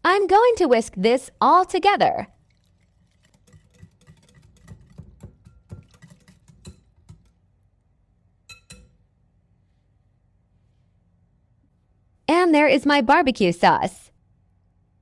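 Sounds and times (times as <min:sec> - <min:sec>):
whisk clicking against bowl: 0:02.4 - 0:07.4
ringing taps on bowl: 0:08.5 - 0:09.0.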